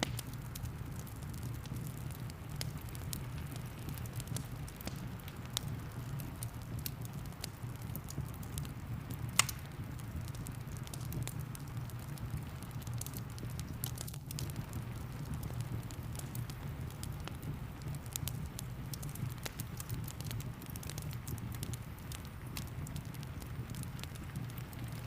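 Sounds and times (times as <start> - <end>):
fire popping: 0.0 - 25.0
low rumble of rain: 0.0 - 25.0
wood fire crackling: 0.0 - 25.0.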